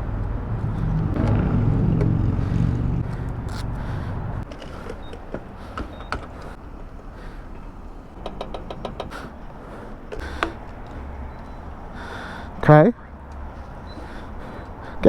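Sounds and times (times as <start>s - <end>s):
low rumble: 0.0s - 4.5s
motorcycle engine stopping: 0.2s - 6.2s
handling clicks at fuel pump: 10.1s - 11.5s.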